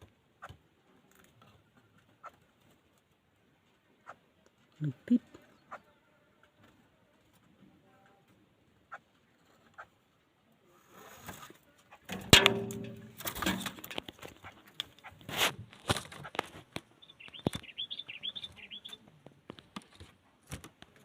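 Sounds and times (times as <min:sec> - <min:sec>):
handling knocks and rustles: 0:12.1 - 0:17.6
bird wings flapping: 0:13.1 - 0:17.8
bird chattering calls: 0:17.0 - 0:19.0.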